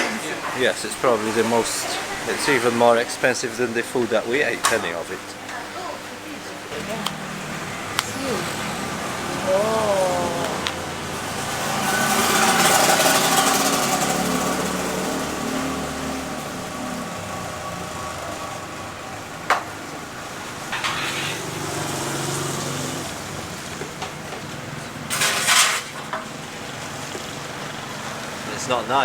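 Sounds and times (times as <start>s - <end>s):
vehicle engine passing by: 6.7s - 25.3s.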